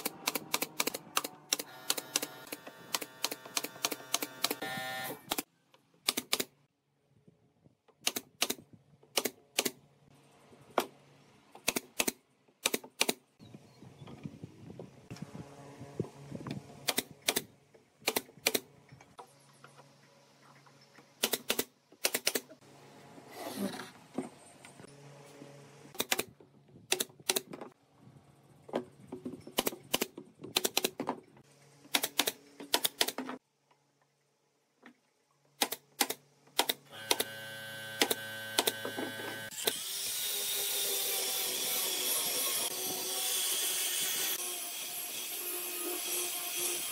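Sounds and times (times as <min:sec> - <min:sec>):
pneumatic nailer firing: 0:00.0 - 0:05.5, 0:35.6 - 0:40.7.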